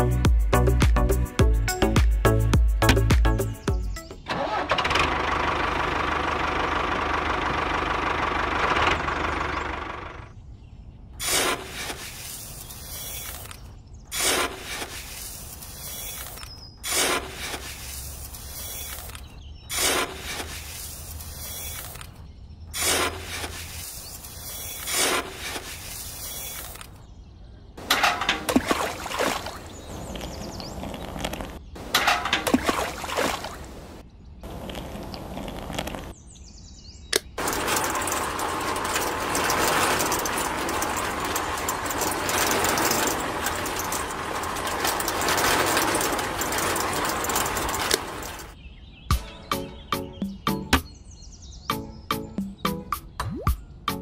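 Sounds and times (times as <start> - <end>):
spoon scraping sand in metal bucket: 11.2 - 22.1, 22.8 - 26.9, 37.4 - 48.6
water splashing: 27.9 - 29.8, 31.9 - 34.0.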